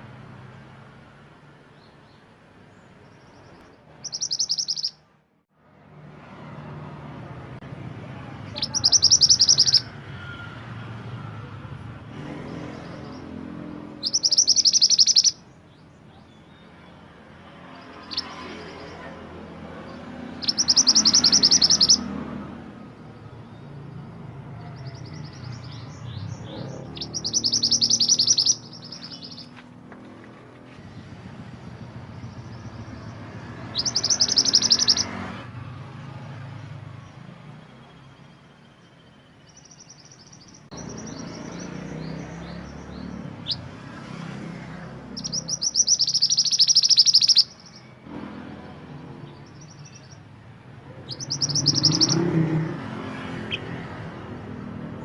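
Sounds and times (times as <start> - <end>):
songbird singing rapid high notes: 3.0 - 5.1, 8.3 - 10.0, 12.4 - 29.6, 31.6 - 35.2, 37.5 - 43.8, 45.1 - 48.0, 49.2 - 54.0.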